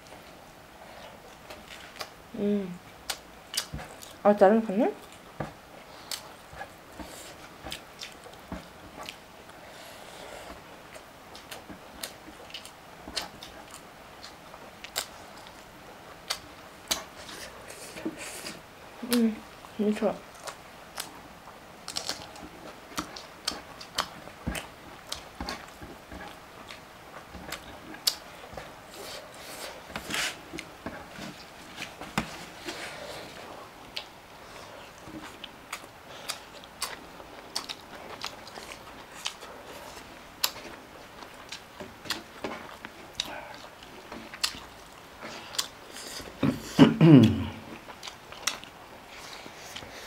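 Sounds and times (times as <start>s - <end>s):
chewing and biting: 6.0s - 9.3s, 21.8s - 46.4s, 47.8s - 50.0s.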